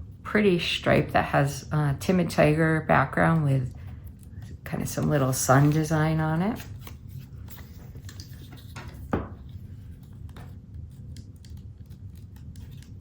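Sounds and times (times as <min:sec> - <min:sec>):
paper rustling: 0:04.8 - 0:13.0
object set down with knock: 0:08.8 - 0:09.4.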